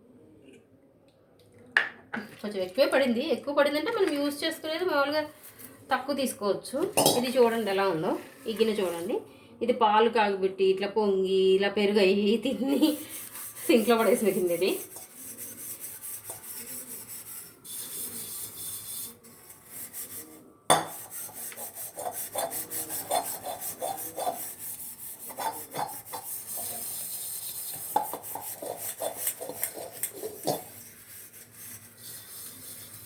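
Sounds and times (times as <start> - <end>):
pot being scrubbed: 7.0 - 9.1, 12.5 - 33.0.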